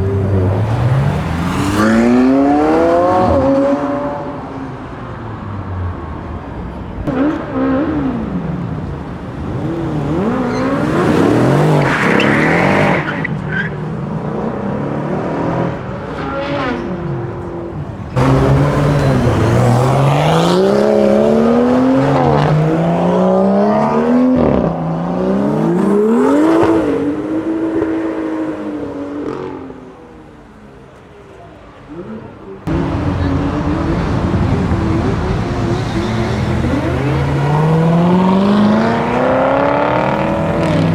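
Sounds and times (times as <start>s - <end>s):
car engines revving hard: 0.0s - 30.6s, 31.6s - 40.9s
tyre squeal: 9.9s - 13.8s.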